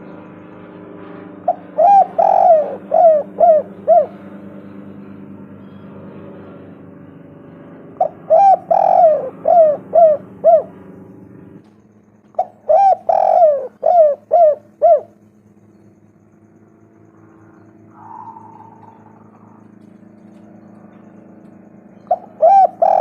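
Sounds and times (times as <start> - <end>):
dove cooing: 1.4 - 5.9, 8.0 - 11.0, 12.3 - 15.8, 17.1 - 23.0.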